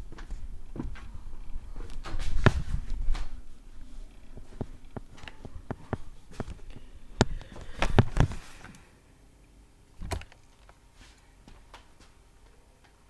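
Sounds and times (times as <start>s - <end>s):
irregular clicks and knocks: 4.1s - 8.8s, 10.0s - 10.8s.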